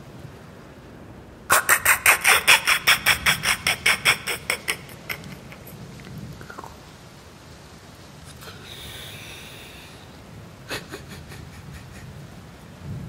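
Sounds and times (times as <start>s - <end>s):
man laughing hard: 1.5s - 5.9s, 10.7s - 12.2s.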